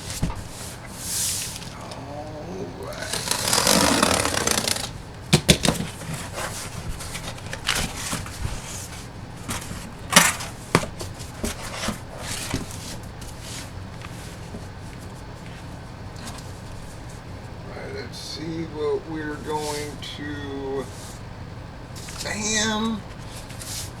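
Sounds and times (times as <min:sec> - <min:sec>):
packaging rustling: 0:02.9 - 0:13.7.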